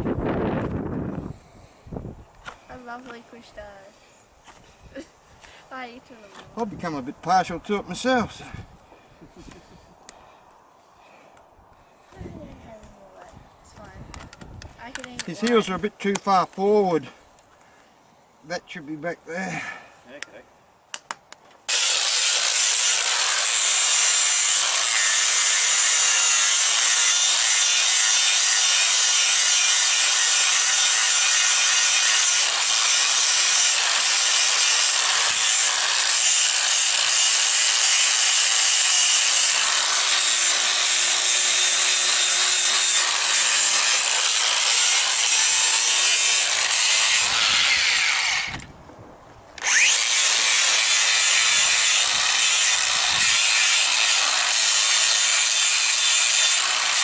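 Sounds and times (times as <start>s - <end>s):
power grinder rasping on hoof: 21.7s - 48.6s, 49.6s - 57.0s.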